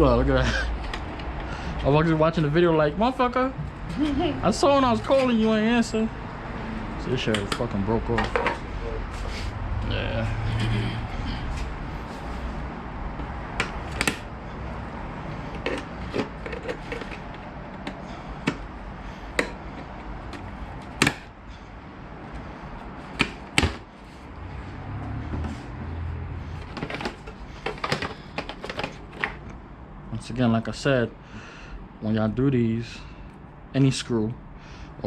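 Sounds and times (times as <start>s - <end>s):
plastic parts clicking and knocking: 15.4s - 18.7s, 19.3s - 21.3s, 26.6s - 29.6s.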